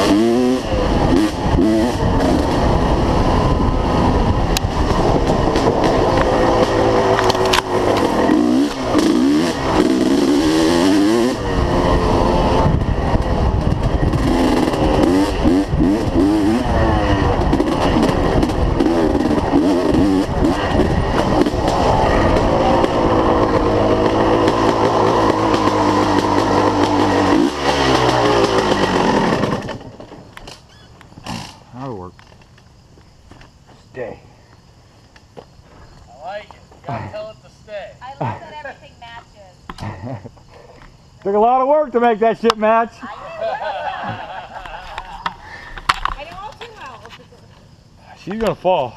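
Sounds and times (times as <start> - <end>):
dirt bike engine revving: 0.0 - 31.8.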